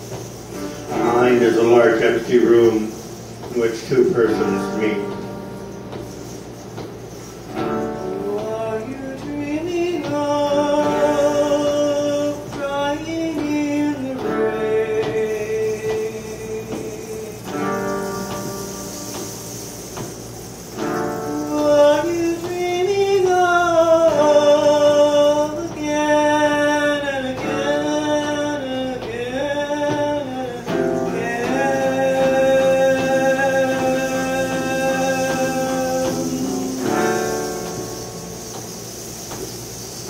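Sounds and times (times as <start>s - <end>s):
plucked guitar: 0.0s - 40.0s
person singing long notes: 8.0s - 17.9s, 21.4s - 37.9s.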